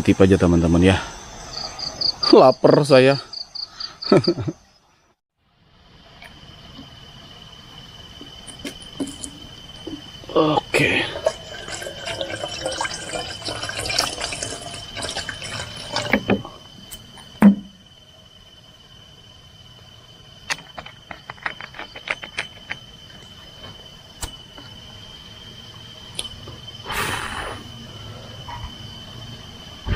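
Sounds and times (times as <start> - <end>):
crickets chirring: 0.0 - 29.9
water pouring into a container: 11.0 - 16.3
dull thump: 17.4 - 17.8.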